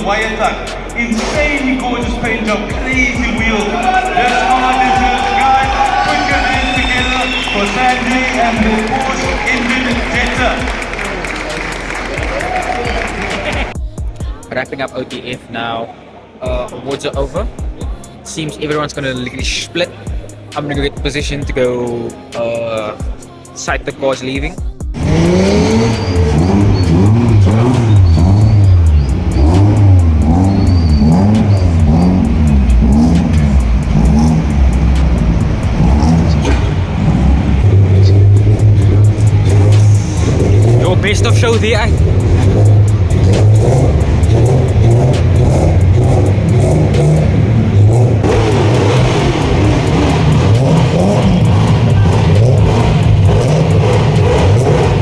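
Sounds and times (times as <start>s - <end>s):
car engines revving: 0.0s - 13.8s, 24.9s - 55.0s
music with a steady beat: 0.0s - 14.6s, 16.5s - 55.0s.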